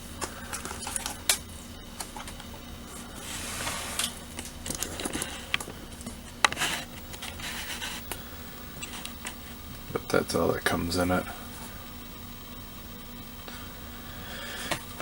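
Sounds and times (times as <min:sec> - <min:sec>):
low room hum: 0:00.0 - 0:15.0
paper rustling: 0:02.0 - 0:08.1.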